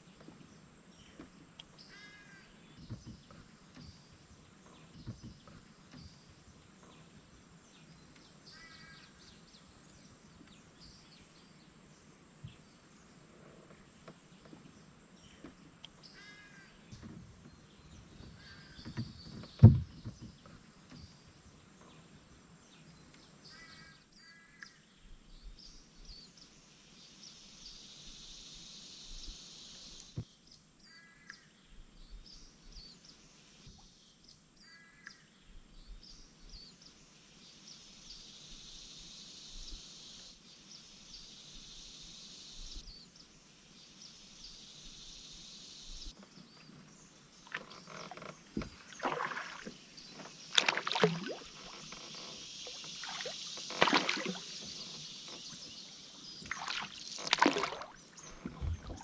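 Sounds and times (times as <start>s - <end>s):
faint birdsong: 0.0s - 59.0s
paddle strokes splashing water: 47.4s - 59.0s.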